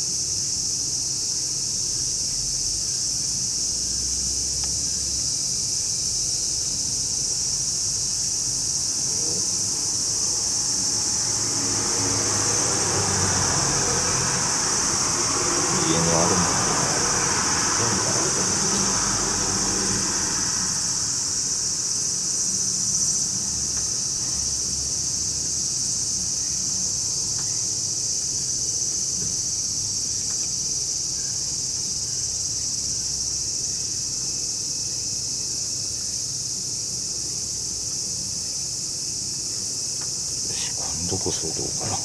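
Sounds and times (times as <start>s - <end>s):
insects droning: 0.0s - 42.0s.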